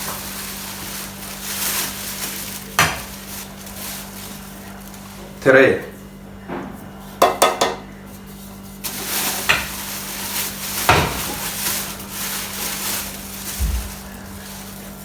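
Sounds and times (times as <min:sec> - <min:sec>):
scraping rustle: 0:00.0 - 0:05.4, 0:08.0 - 0:15.0
utensils knocking against bowl: 0:02.8 - 0:03.2, 0:07.2 - 0:07.9.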